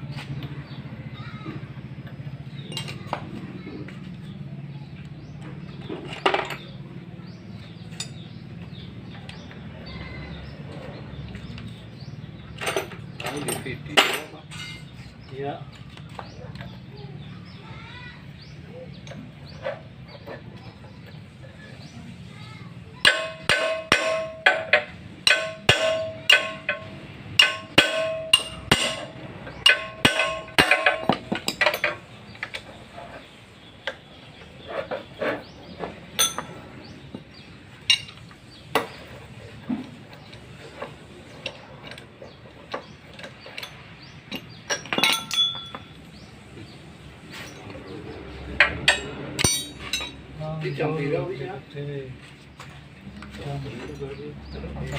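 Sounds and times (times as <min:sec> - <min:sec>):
metal tools clinking and knocking: 0:02.1 - 0:03.3, 0:05.6 - 0:06.8, 0:07.6 - 0:09.4, 0:11.3 - 0:16.8, 0:23.0 - 0:37.2, 0:37.8 - 0:46.2, 0:47.3 - 0:47.9, 0:48.5 - 0:50.3
hammer blows on metal: 0:23.0 - 0:32.0
loud metallic clank: 0:23.0 - 0:32.1, 0:36.2 - 0:36.6, 0:48.6 - 0:50.2.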